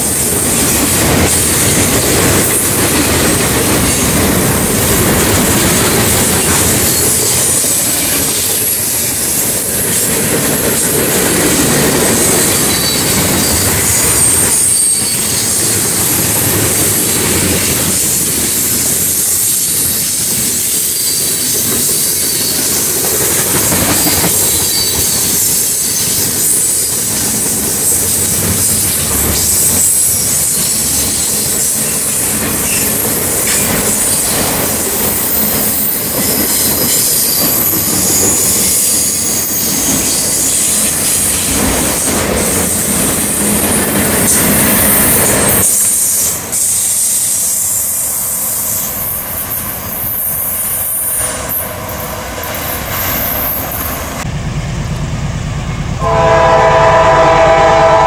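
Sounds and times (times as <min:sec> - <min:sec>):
steel wheels rumbling on rails: 0:00.0 - 0:58.0
high-pitched wheel squeals: 0:12.2 - 0:16.0, 0:19.0 - 0:23.0, 0:24.3 - 0:34.4.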